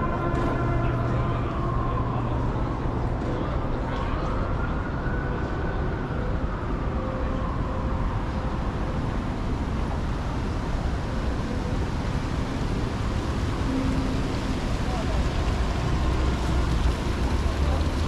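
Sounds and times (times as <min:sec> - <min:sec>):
city traffic passing: 0:00.0 - 0:18.0.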